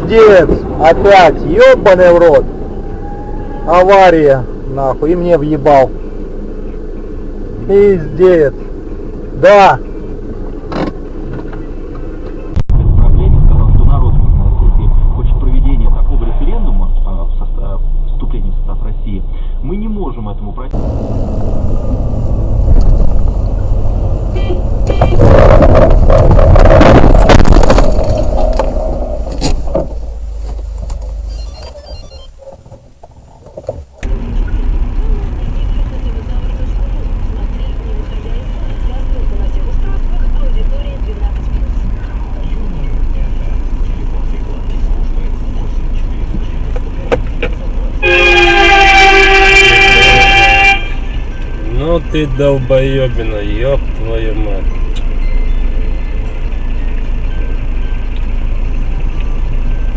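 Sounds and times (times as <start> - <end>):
car road and engine rumble: 0.0 - 59.9
vehicle horn blast: 24.2 - 25.6, 48.0 - 51.3.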